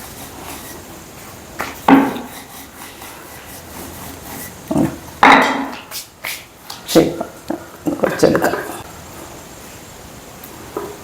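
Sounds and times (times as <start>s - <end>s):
dough rubbing: 0.0s - 5.1s
rolling pin knocking on board: 1.9s - 2.2s.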